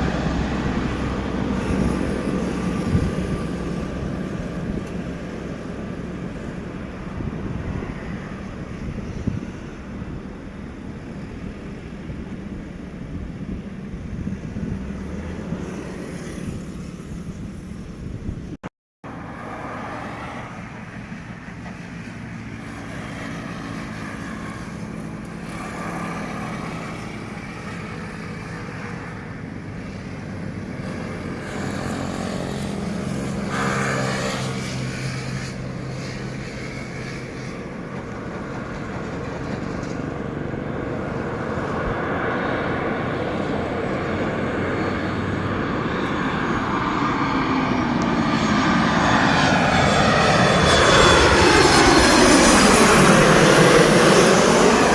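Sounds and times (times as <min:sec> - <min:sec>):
wind on microphone: 0:00.0 - 0:18.6
airliner engines: 0:00.0 - 0:54.9.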